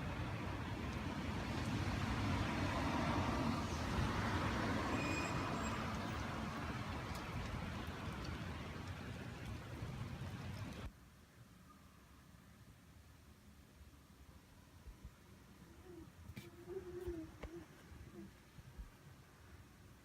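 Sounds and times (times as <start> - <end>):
road traffic: 0.0 - 10.9.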